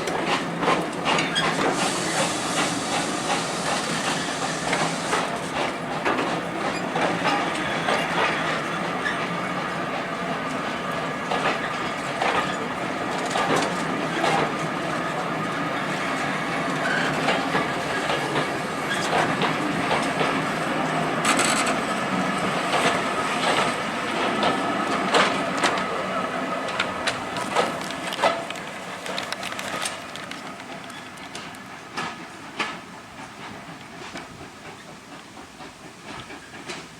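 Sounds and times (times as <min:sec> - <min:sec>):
train rolling on track: 0:00.0 - 0:36.9
wheel clicks over rail joints: 0:21.2 - 0:21.9, 0:26.7 - 0:32.8.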